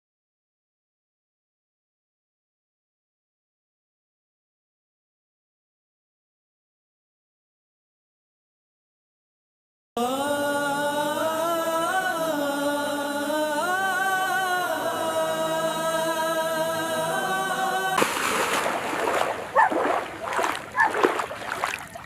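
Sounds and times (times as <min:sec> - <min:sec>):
person singing chant-like notes: 0:10.0 - 0:18.1
splashing water: 0:18.0 - 0:22.0.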